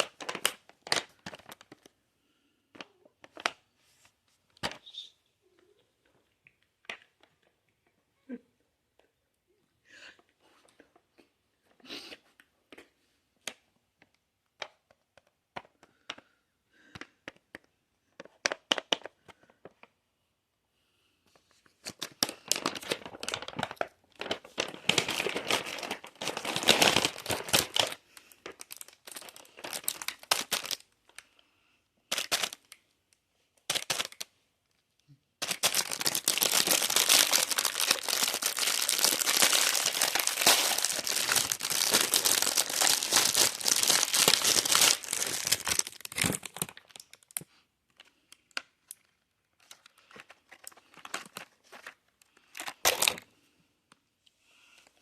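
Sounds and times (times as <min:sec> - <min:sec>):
packaging crinkling: 0:00.0 - 0:02.0, 0:21.8 - 0:31.2, 0:32.1 - 0:32.8, 0:33.6 - 0:34.3, 0:35.4 - 0:53.2.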